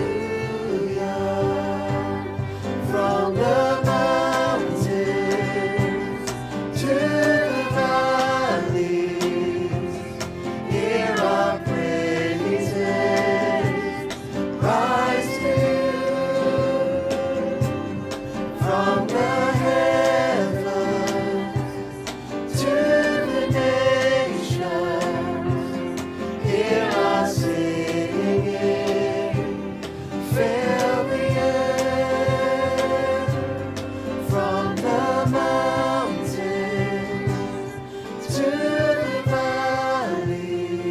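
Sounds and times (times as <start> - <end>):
band with steady beat: 0.0 - 40.9
group of voices singing: 0.0 - 40.9.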